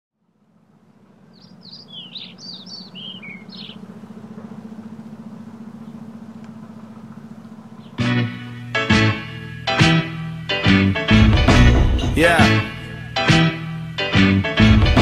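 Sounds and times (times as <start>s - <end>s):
steady low hum: 0.2s - 10.6s
birds chirping: 0.4s - 14.0s.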